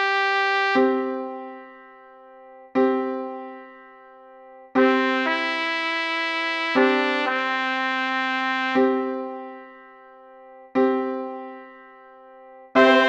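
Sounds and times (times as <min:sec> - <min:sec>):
trumpet and piano chords: 0:00.0 - 0:01.3, 0:04.8 - 0:09.6, 0:12.8 - 0:13.0.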